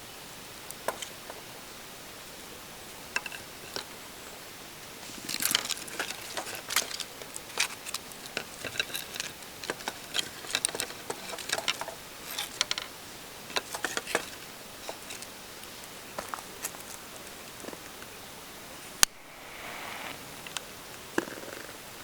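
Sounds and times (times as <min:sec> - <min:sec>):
steady hiss: 0:00.0 - 0:22.0
wood fire crackling: 0:00.6 - 0:18.0.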